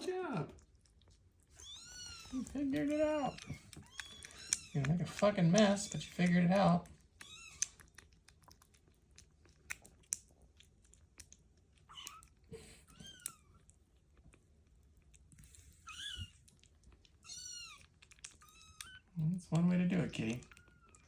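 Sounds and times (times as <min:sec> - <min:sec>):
kittens chewing: 0:00.0 - 0:21.0.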